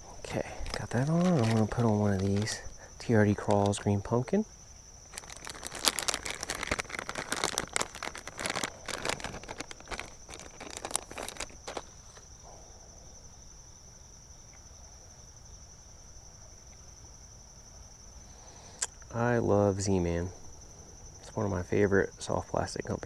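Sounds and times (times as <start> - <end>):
plastic packaging crinkling: 0.0 - 4.1, 5.1 - 12.2
crickets droning: 0.0 - 23.0.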